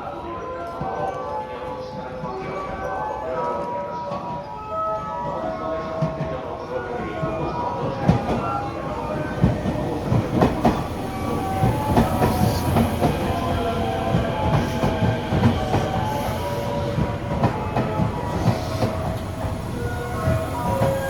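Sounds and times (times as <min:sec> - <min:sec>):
train rumble: 0:06.0 - 0:21.0
train wheels clacking: 0:07.3 - 0:21.0.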